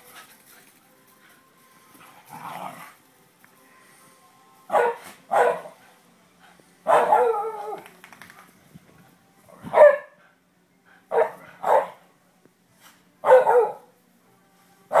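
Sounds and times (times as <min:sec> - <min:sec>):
dog barking: 0:04.7 - 0:05.8, 0:06.9 - 0:07.5, 0:09.7 - 0:10.2, 0:11.1 - 0:12.0, 0:13.2 - 0:13.9.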